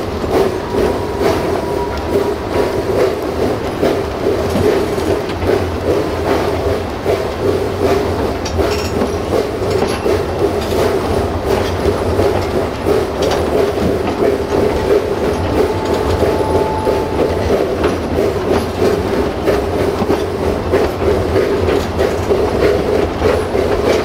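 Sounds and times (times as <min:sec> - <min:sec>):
train rumbling on track: 0:00.0 - 0:24.0
wheels clacking over rail joints: 0:00.0 - 0:24.0
faint thin squeal: 0:14.5 - 0:18.0.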